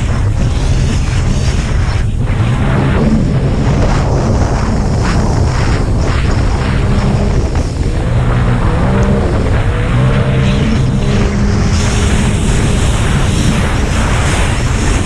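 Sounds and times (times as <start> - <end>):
jet ski engines at high revs: 0.0 - 15.0
loud rushing noise: 0.0 - 15.0.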